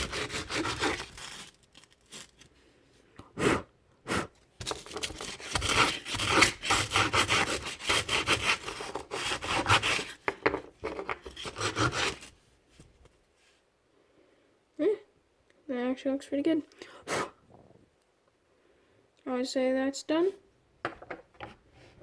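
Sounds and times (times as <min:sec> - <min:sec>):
sandpaper rubbing: 0:00.0 - 0:01.6, 0:05.2 - 0:10.2, 0:11.3 - 0:12.3.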